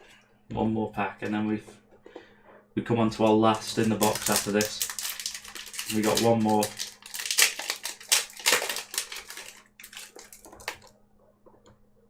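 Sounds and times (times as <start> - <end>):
foil pack being torn open: 3.6 - 10.9.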